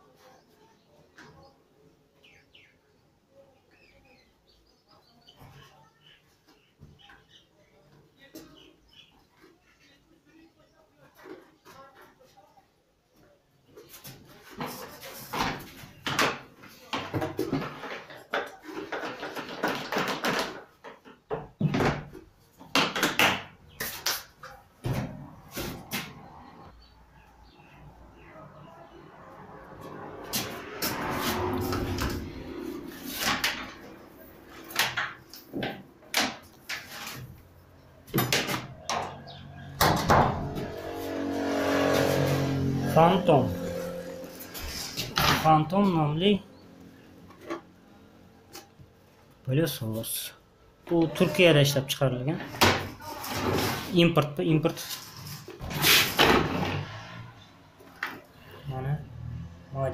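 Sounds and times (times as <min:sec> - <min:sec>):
hard plastic knocks and clatter: 0:15.4 - 0:23.5.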